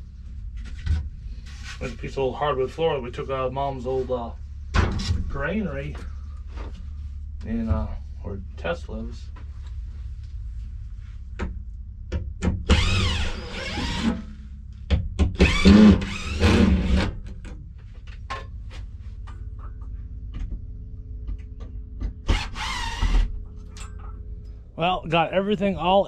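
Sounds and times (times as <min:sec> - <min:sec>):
knocks and clunks: 0:04.7 - 0:08.0
loud wavering squealing scrapes: 0:22.3 - 0:23.4.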